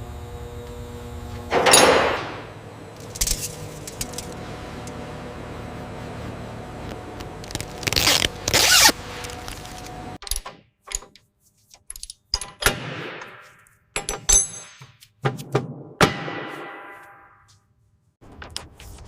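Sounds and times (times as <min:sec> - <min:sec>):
steady mechanical hum: 0:00.0 - 0:10.2.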